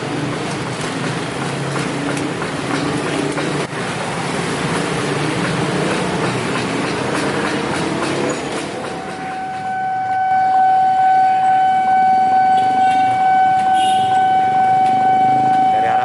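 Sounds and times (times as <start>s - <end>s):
train wheels clattering on rails: 0.0s - 9.8s.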